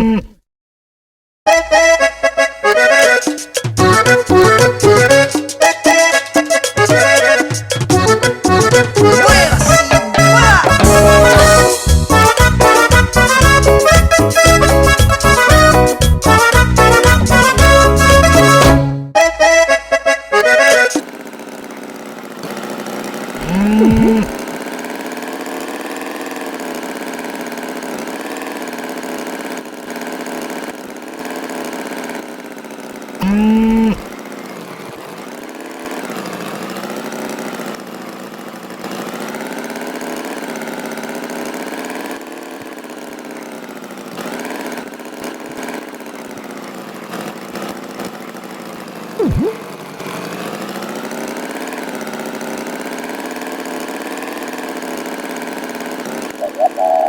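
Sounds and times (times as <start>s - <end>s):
cartoon tractor engine: 0.0s - 0.4s, 1.5s - 57.0s
short loud pitched sounds: 23.4s - 24.5s, 33.2s - 34.1s, 49.2s - 49.7s, 56.4s - 57.0s.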